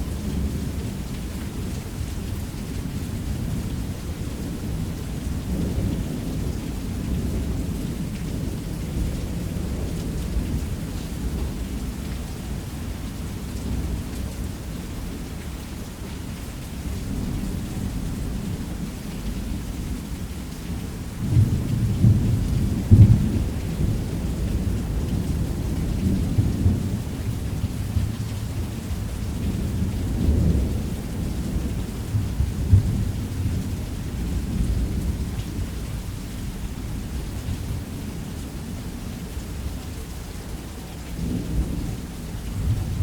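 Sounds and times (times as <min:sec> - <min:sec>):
rumble of thunder: 0:00.0 - 0:15.3, 0:16.8 - 0:43.0
heavy rain: 0:00.0 - 0:43.0.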